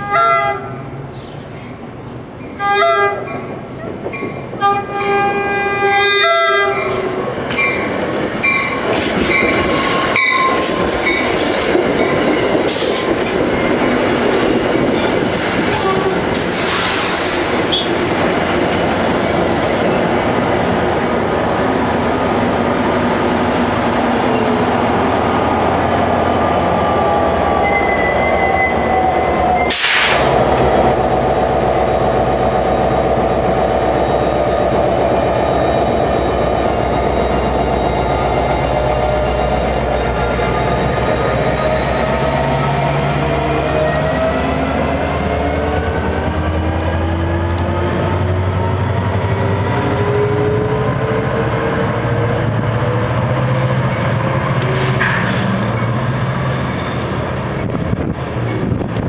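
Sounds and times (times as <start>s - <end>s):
train horn blasts: 0.0s - 0.8s, 2.6s - 3.5s, 4.6s - 7.2s, 15.7s - 18.0s
train wheels clattering on rail: 3.4s - 5.2s, 6.7s - 20.8s, 52.1s - 59.0s
wheels squealing: 19.2s - 26.3s.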